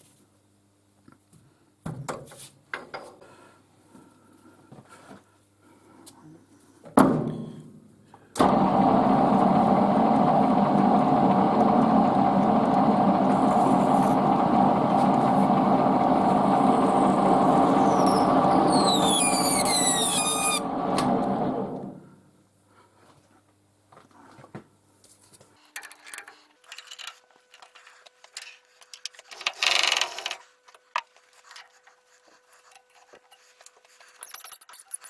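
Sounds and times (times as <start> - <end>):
lathe motor running: 8.4 - 22.0
high falling squeals from cutting: 17.7 - 20.7.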